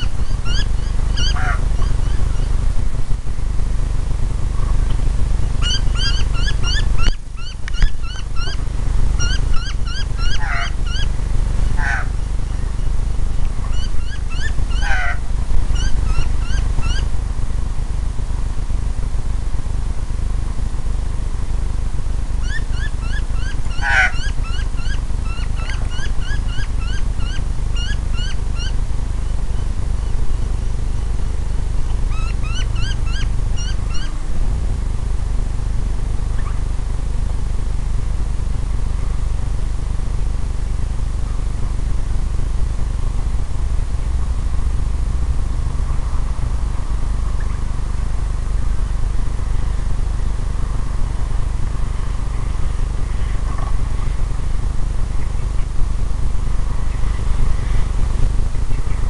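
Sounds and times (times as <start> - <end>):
bird calling in rising notes: 0.0 - 2.6, 5.6 - 8.6, 9.2 - 12.9, 13.6 - 17.1, 22.4 - 30.3, 31.8 - 34.2
steady low rumble: 0.0 - 59.0.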